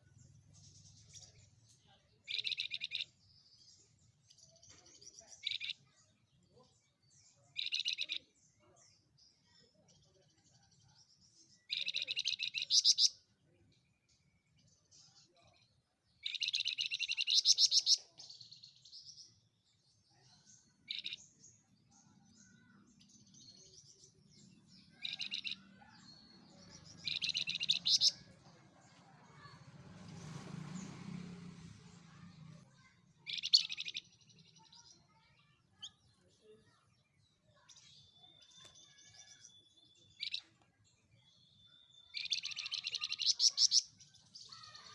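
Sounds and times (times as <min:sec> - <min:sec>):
soft bird chirps: 0:00.0 - 0:31.3, 0:31.9 - 0:44.9
songbird high trilling: 0:11.7 - 0:13.1, 0:27.0 - 0:28.2, 0:42.1 - 0:43.9.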